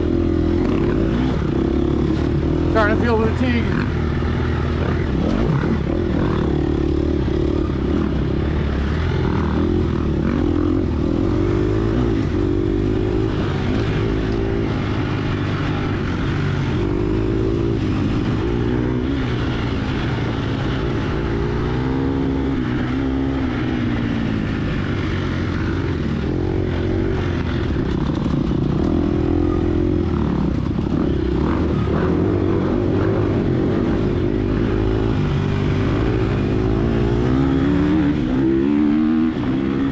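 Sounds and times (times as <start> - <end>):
dirt bike engine revving: 0.0 - 6.0.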